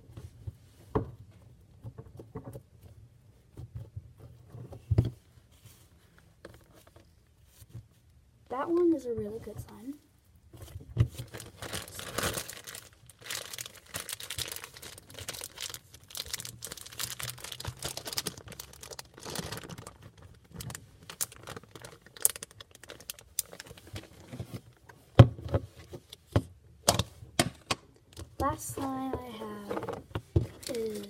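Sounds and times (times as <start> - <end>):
slime squishing and crackling: 11.1 - 24.6.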